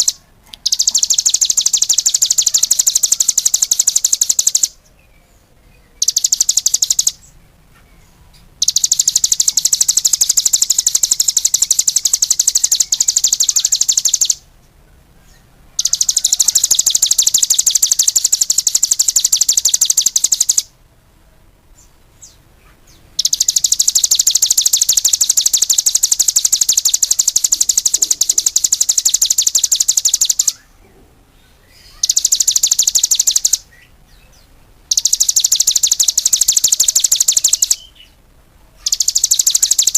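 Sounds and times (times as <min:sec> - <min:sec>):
songbird high-pitched trills: 0:00.0 - 0:14.5, 0:15.2 - 0:20.7, 0:21.8 - 0:30.8, 0:31.4 - 0:38.2, 0:38.8 - 0:39.9.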